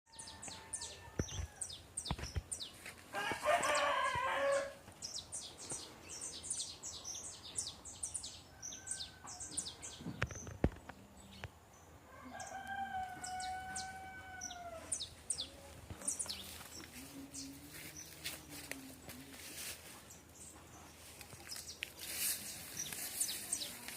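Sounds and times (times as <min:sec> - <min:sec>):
small birds chirping: 0:00.1 - 0:23.9
rooster crowing: 0:03.1 - 0:04.8, 0:12.1 - 0:14.9.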